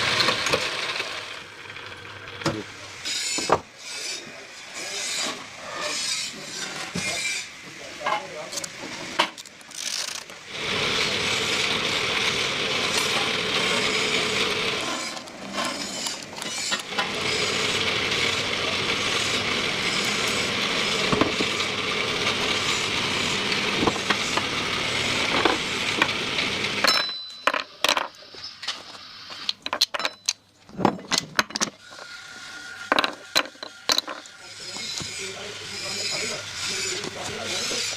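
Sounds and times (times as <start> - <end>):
factory machinery running: 10.4 - 27.4.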